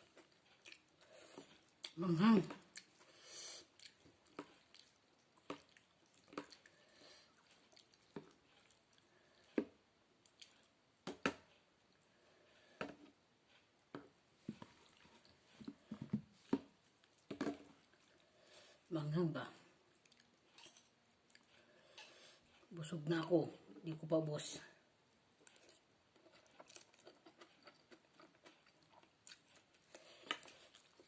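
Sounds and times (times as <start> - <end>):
wet chewing and slurping: 0.0 - 9.5, 25.4 - 31.0.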